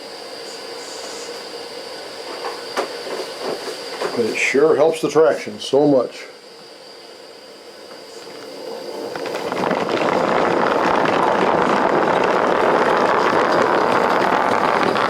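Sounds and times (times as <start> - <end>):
train wheels grinding on sand: 8.3 - 15.0.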